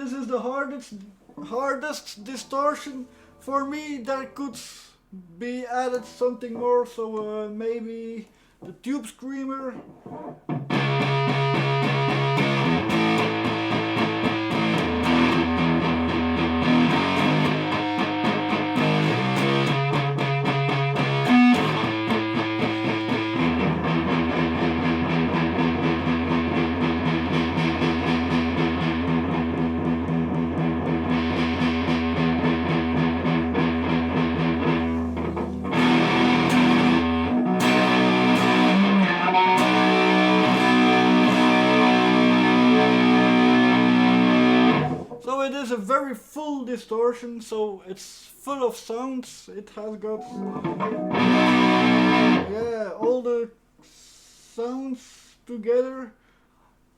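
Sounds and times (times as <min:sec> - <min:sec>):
distorted electric guitar riffs: 0:10.0 - 0:45.2, 0:50.1 - 0:53.2.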